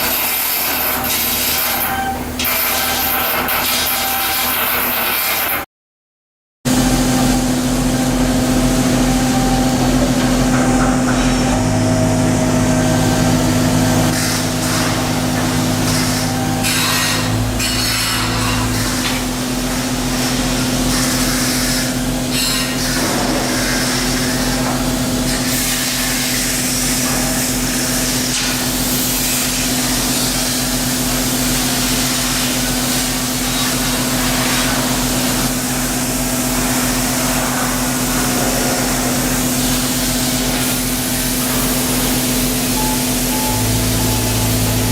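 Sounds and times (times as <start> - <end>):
steady machine hum: 6.7 - 25.4, 28.6 - 44.9.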